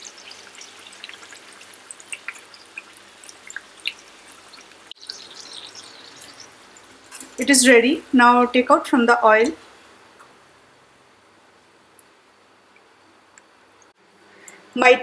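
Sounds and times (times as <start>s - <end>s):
puri sizzling in oil: 0.0s - 8.0s.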